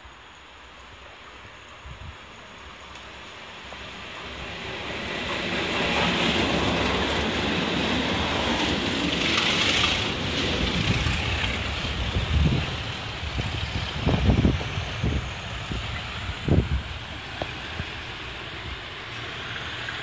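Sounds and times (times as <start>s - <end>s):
diesel train passing: 0.0s - 20.0s.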